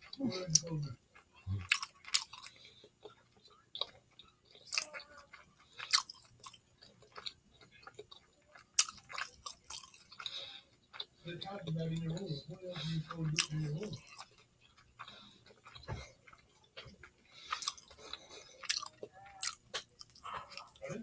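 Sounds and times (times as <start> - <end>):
person chewing food: 0.0 - 21.0
mouth clicks and smacks: 13.4 - 21.0.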